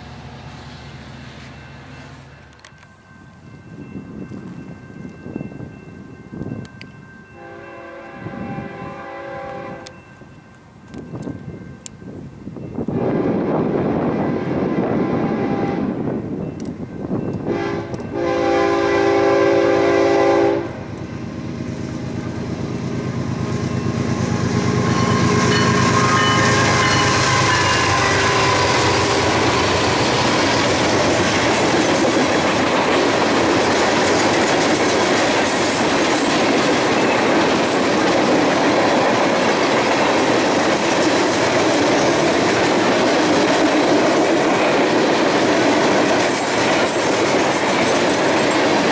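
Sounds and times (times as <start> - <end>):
diesel locomotive passing: 0.0 - 48.9
locomotive air horn: 7.4 - 10.0, 12.9 - 16.0, 17.5 - 20.9, 24.3 - 30.2
train wheels clattering on rails: 20.4 - 48.9.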